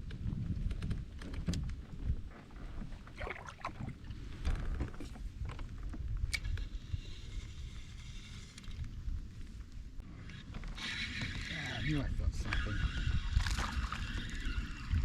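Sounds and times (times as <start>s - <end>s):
water sloshing around kayak: 1.3s - 6.1s.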